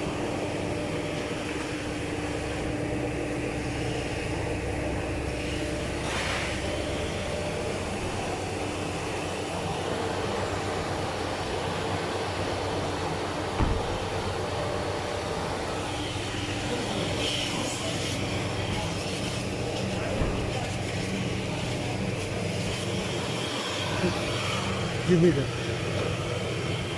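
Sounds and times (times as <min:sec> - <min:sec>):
mechanical drone with low hum: 0:00.0 - 0:26.9
thump: 0:13.6 - 0:14.2, 0:20.2 - 0:20.5.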